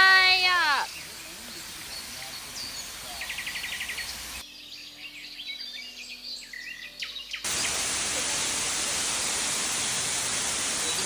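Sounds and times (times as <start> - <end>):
falling water rushing: 0.0 - 4.4, 7.5 - 11.0
birds chirping and whistling: 0.3 - 8.6.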